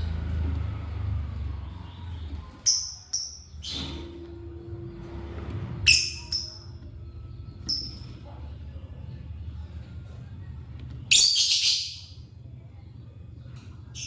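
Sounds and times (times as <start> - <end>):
low hum: 0.0 - 11.1
lovebirds chirping shrilly: 5.9 - 6.7.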